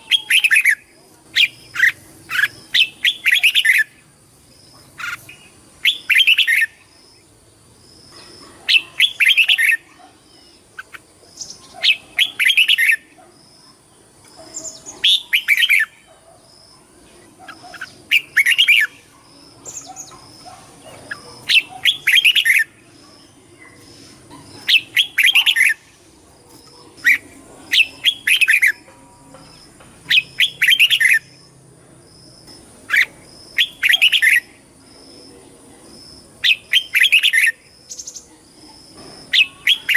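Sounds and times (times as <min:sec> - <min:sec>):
bird singing whistled phrases: 0:00.0 - 0:03.9, 0:05.9 - 0:06.8, 0:39.4 - 0:39.9.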